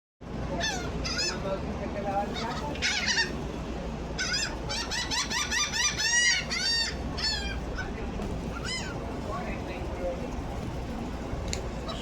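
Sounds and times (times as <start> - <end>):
seagulls calling: 0.5 - 1.6, 2.2 - 9.3, 11.8 - 12.0.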